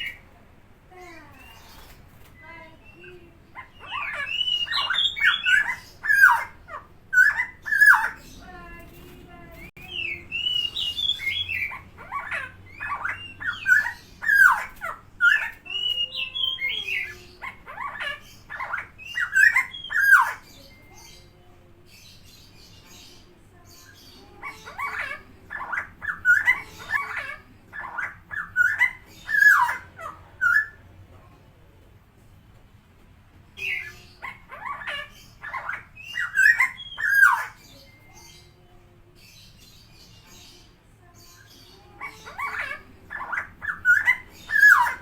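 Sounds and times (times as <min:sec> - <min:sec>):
bird gurgling calls: 0:42.0 - 0:45.0.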